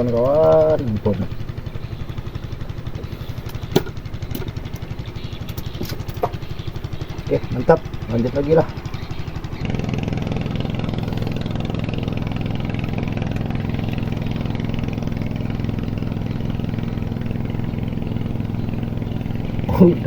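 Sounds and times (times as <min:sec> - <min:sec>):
small boat engine running: 0:00.0 - 0:20.0.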